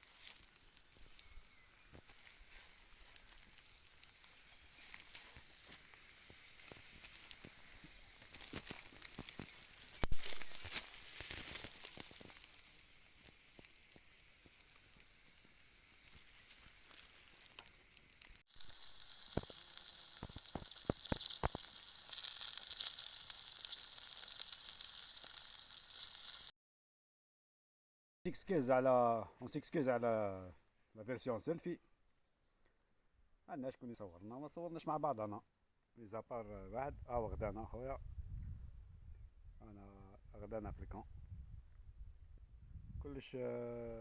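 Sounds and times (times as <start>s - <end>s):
sharp fire pops: 0.0s - 22.9s
campfire crackling and hissing: 0.0s - 26.5s.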